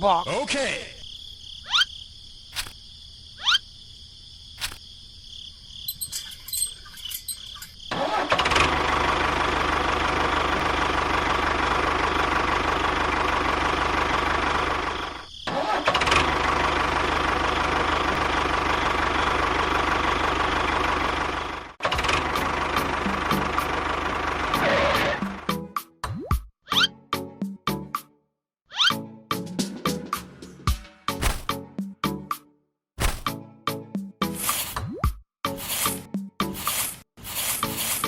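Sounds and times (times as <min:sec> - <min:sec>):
small motor running: 0:36.6 - 0:38.0.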